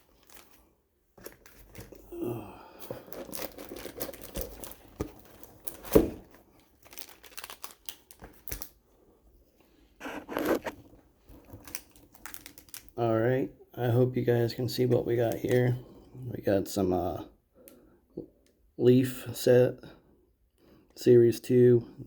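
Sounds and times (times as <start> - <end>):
packaging crinkling and rustling: 0.0 - 2.1, 2.8 - 8.8, 10.0 - 13.0, 14.8 - 15.8.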